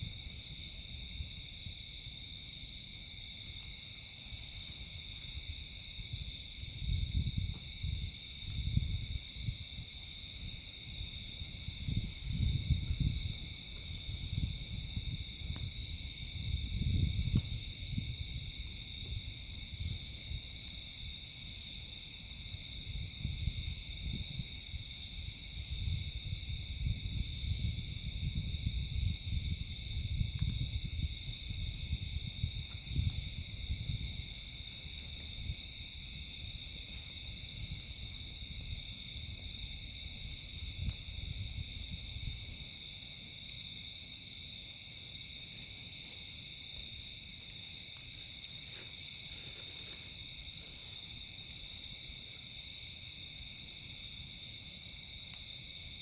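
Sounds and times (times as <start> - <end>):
crickets chirping: 0.0 - 56.0
campfire pops: 6.1 - 9.1, 11.4 - 23.4, 29.7 - 31.4, 32.0 - 37.1, 40.1 - 42.4, 44.0 - 52.4, 55.2 - 56.0
high insect buzz: 41.5 - 56.0.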